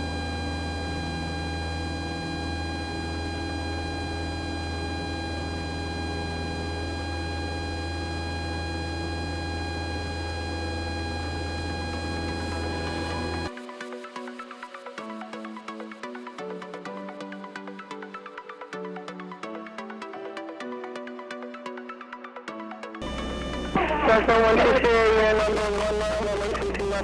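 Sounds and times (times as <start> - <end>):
light aircraft engine hum: 0.0 - 13.5, 23.0 - 27.0.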